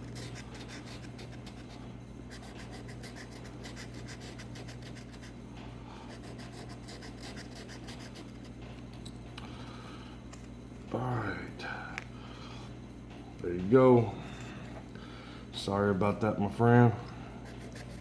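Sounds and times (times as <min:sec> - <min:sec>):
scratch-off ticket being scratched: 0:00.0 - 0:05.3
low electrical hum: 0:00.0 - 0:18.0.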